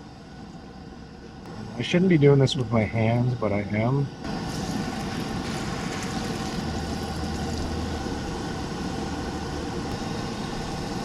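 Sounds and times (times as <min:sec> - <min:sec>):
pancakes sizzling in hot oil: 0:04.3 - 0:11.0.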